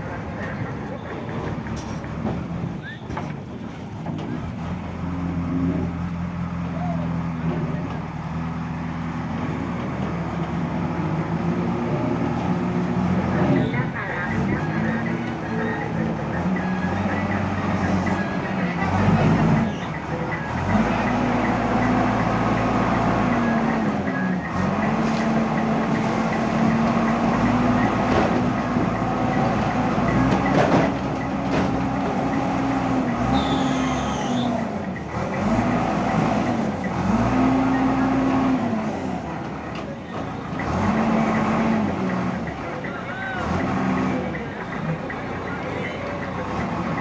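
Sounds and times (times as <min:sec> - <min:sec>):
diesel engine revving: 0:03.4 - 0:47.0
high squeal: 0:33.3 - 0:34.6.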